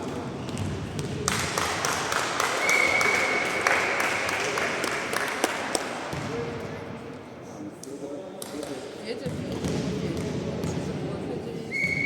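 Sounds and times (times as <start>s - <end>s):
crowd clapping and cheering: 1.3s - 6.0s.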